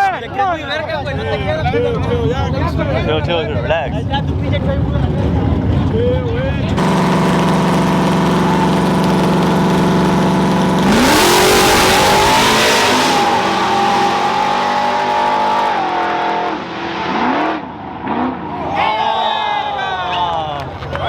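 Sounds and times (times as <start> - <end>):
truck engine revving: 6.7 - 18.7.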